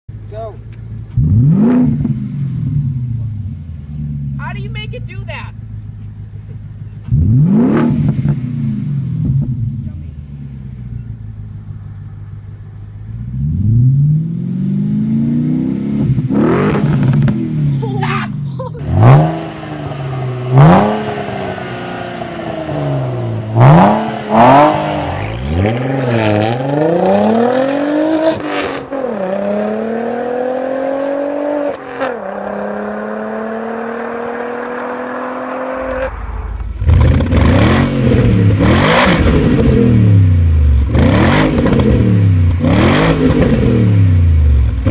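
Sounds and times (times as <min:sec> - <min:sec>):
car exhaust revving: 0:00.1 - 0:44.9
exhaust cracks: 0:16.0 - 0:22.6, 0:35.7 - 0:44.9.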